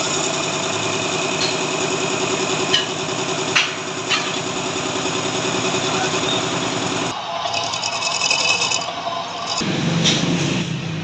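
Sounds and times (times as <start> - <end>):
metal lathe humming: 0.0 - 9.6.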